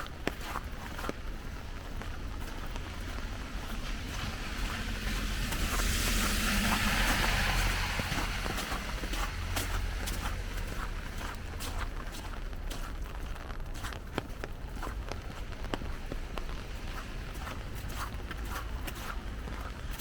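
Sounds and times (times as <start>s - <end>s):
footsteps on wet slush: 0.0s - 20.0s
tyre hiss on wet road: 2.2s - 13.0s, 15.0s - 20.0s.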